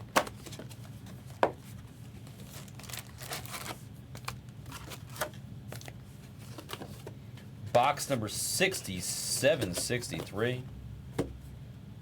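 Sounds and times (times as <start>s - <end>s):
plastic wrapper crinkling: 2.4s - 5.2s.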